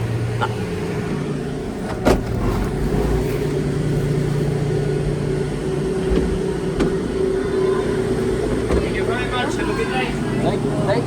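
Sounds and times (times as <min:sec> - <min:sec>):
gondola machinery humming: 0:00.0 - 0:11.0.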